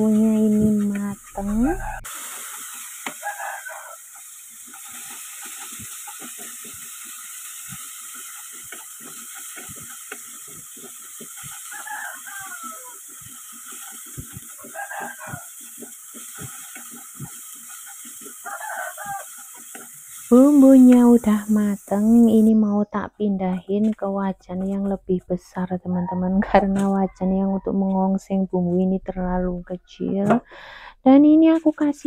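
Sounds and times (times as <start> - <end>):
paste sizzling in a wok: 1.2 - 22.4
wooden spatula scraping a pan: 13.0 - 21.2, 23.5 - 25.5.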